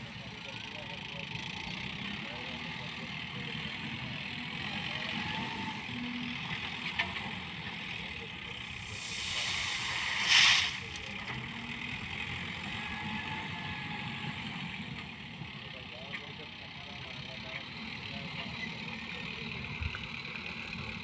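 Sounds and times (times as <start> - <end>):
vehicle engine idling: 0.0 - 21.0
rushing hiss: 8.7 - 11.1.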